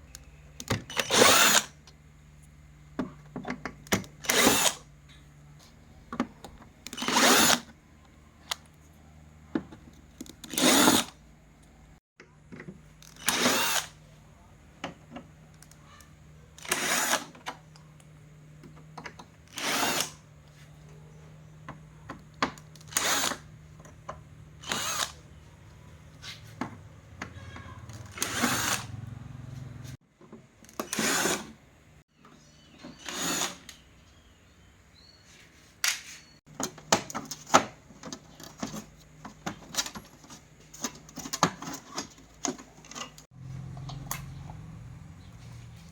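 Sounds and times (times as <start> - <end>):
electric screwdriver whirring: 0.9 - 1.8, 4.2 - 4.8, 6.9 - 7.7, 10.4 - 11.2, 13.1 - 14.0, 16.6 - 17.3, 19.5 - 20.2, 22.8 - 23.4, 24.6 - 25.2, 28.0 - 29.0, 30.9 - 31.5.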